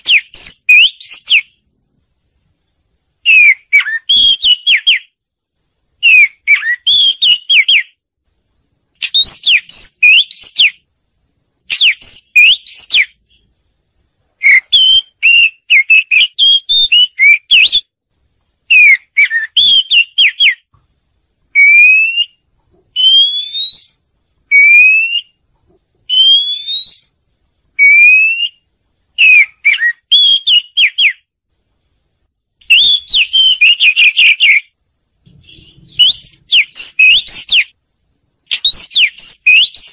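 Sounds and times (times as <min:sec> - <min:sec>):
bird whistling song: 0:00.0 - 0:01.7, 0:03.2 - 0:05.2, 0:06.0 - 0:08.0, 0:09.0 - 0:10.9, 0:11.6 - 0:13.5, 0:14.4 - 0:17.9, 0:18.7 - 0:20.7, 0:21.5 - 0:25.4, 0:26.1 - 0:27.2, 0:27.8 - 0:31.3, 0:32.6 - 0:37.8, 0:38.5 - 0:39.9.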